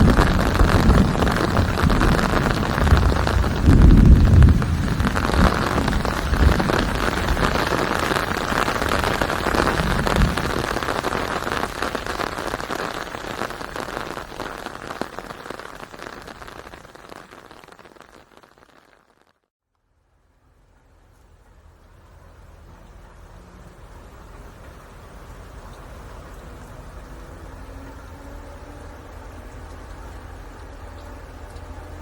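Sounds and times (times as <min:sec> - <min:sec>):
low rumble of thunder: 0:00.0 - 0:12.6
steady rain falling: 0:00.0 - 0:32.0.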